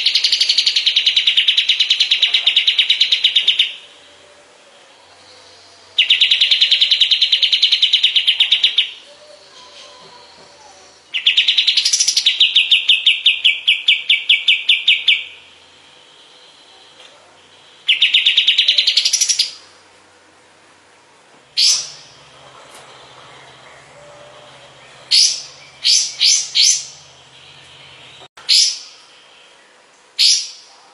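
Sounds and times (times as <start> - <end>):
bird singing high trills: 0.0 - 4.2, 4.9 - 19.7, 21.6 - 30.7.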